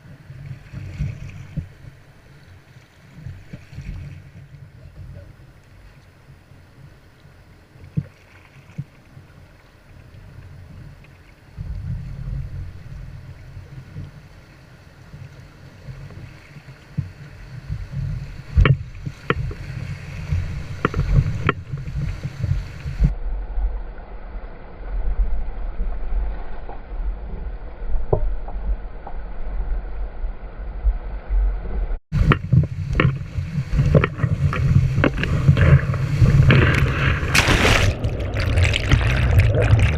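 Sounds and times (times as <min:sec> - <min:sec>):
wind rumbling on microphone: 0:00.0 - 0:39.9
rushing water: 0:32.2 - 0:39.9
water splashing: 0:32.2 - 0:39.9.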